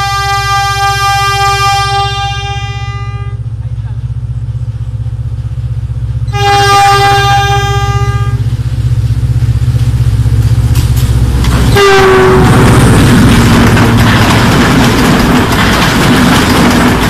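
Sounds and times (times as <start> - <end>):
train horn blast: 0.0 - 3.5, 6.3 - 8.5, 11.6 - 12.8
train engine rumble: 0.0 - 17.0
rush of train wheels: 7.0 - 17.0.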